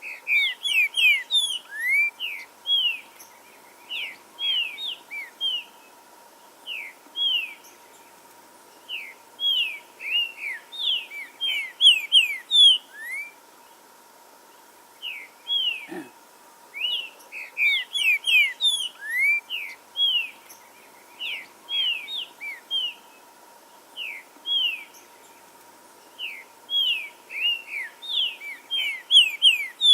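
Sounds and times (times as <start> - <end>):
bird singing whistled notes: 0.0 - 3.1, 8.9 - 13.4, 15.0 - 15.9, 16.7 - 23.1, 24.0 - 25.4, 26.1 - 29.9
faint high bird chirps: 16.8 - 23.2, 24.0 - 29.9.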